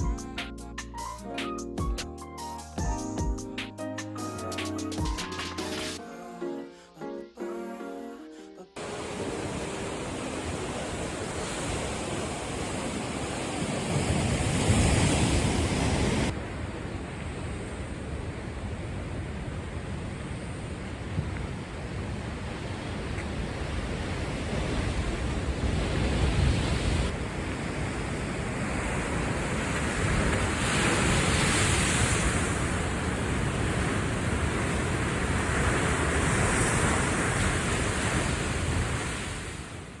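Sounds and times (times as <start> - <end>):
rough surf breaking: 8.8 - 16.5, 22.0 - 40.0.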